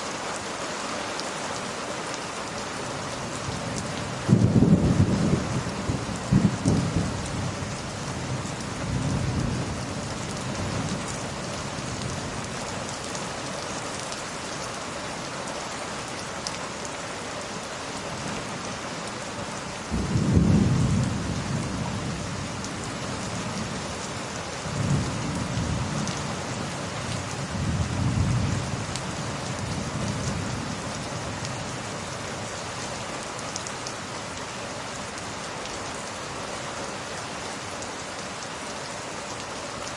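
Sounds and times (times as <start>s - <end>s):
steady rain: 0.0s - 39.9s
rolling thunder: 4.2s - 7.8s, 19.9s - 22.6s.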